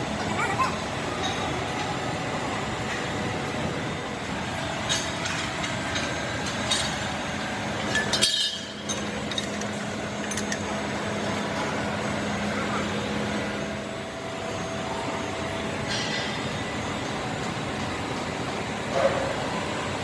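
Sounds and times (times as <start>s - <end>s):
metal parts clinking: 7.9s - 10.7s.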